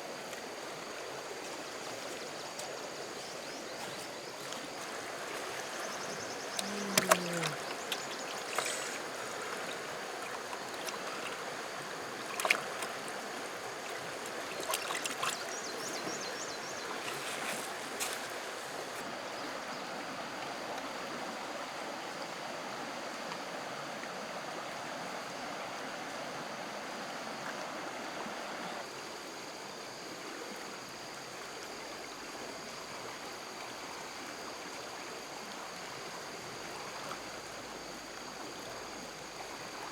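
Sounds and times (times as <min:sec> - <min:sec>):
stream water rushing: 0:00.0 - 0:29.5.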